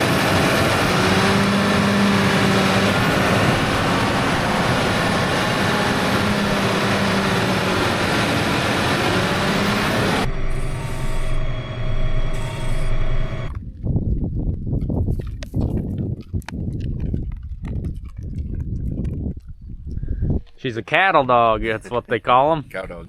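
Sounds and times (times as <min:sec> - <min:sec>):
heavy machinery running: 0:00.0 - 0:13.5
low hum: 0:00.0 - 0:13.7.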